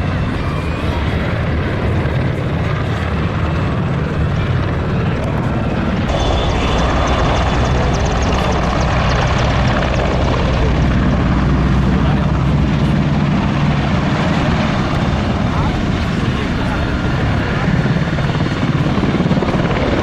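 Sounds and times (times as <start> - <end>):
helicopter flying past: 0.0 - 20.0
thin high whine: 6.1 - 10.9.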